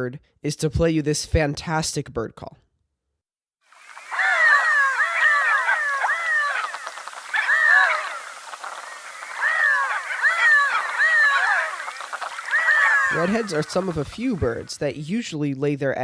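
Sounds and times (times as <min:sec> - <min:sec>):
ducks calling: 0:03.8 - 0:15.0.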